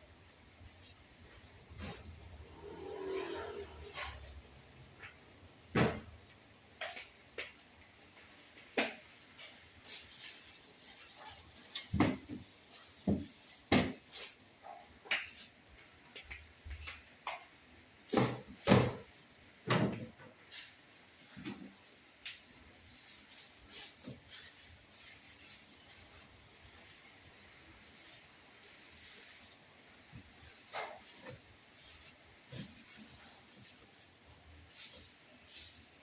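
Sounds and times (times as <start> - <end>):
knocks and clacks of handled objects: 5.0 - 27.0, 27.8 - 36.0.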